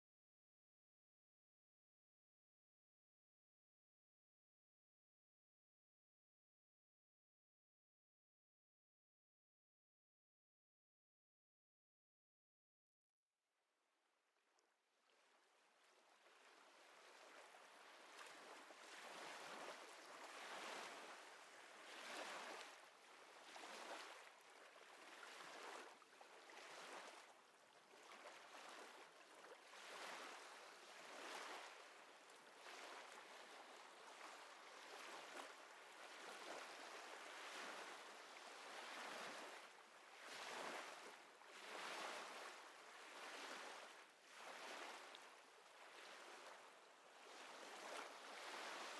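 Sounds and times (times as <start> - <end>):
small waves lapping: 15.9 - 48.9.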